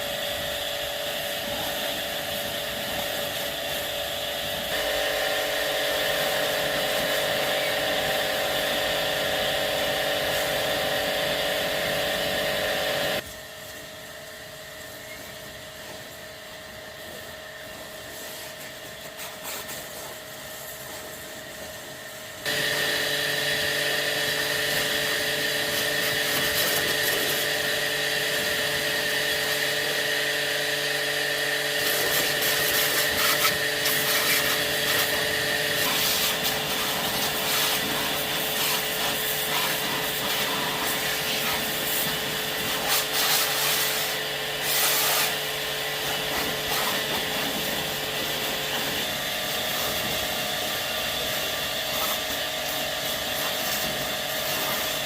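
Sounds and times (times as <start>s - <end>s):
electric power tool motor hum: 22.4s - 51.9s.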